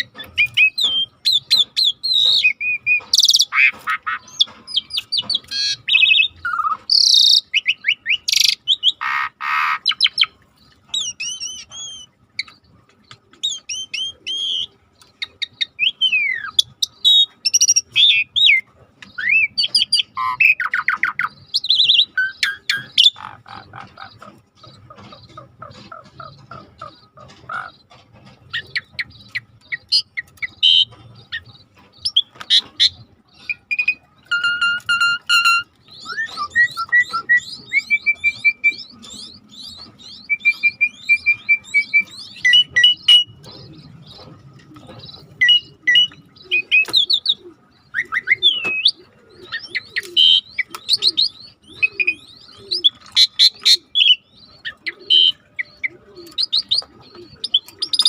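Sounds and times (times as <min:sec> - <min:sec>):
starling singing: 0:00.0 - 0:58.0.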